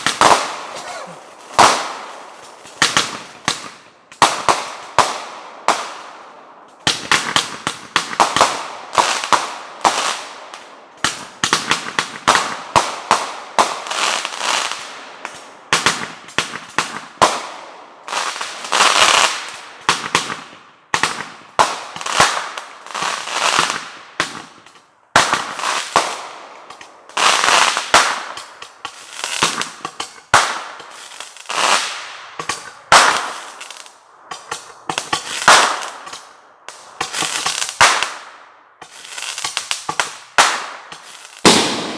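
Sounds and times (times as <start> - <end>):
fireworks bangs and crackle: 0.0 - 41.9.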